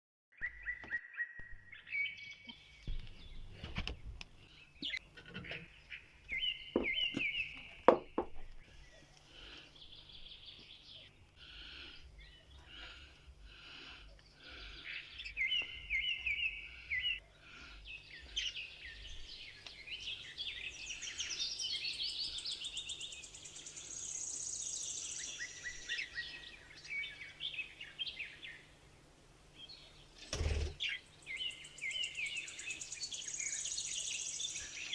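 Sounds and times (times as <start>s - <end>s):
sharp knocks: 6.8s - 7.3s, 7.9s - 8.4s.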